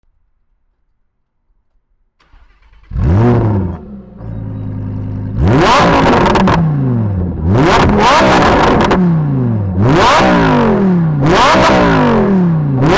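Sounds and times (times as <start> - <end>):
starter whir: 2.2 - 6.7
engine revving: 2.2 - 12.9
sports car engine starting and idling: 2.2 - 12.9.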